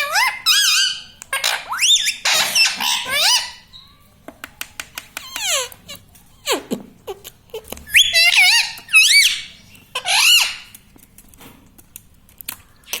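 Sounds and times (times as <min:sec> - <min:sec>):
parakeet calling: 0:00.0 - 0:04.1, 0:05.2 - 0:06.8, 0:07.8 - 0:10.7.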